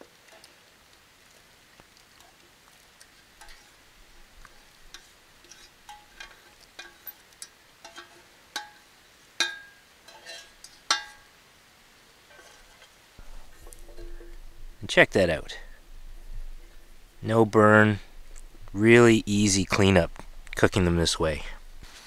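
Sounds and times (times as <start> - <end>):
metal utensil scraping metal pot: 3.4 - 8.8, 9.4 - 11.2, 12.3 - 14.8.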